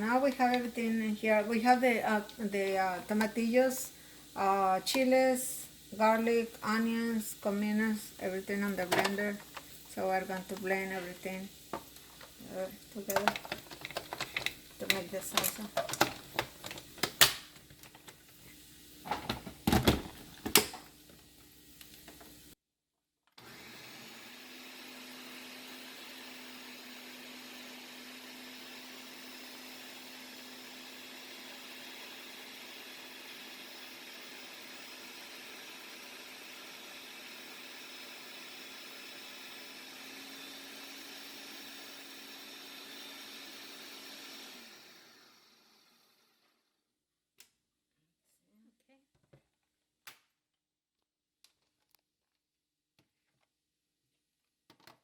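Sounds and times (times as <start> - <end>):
faint steady blender hum: 0.0 - 17.2, 23.4 - 46.8.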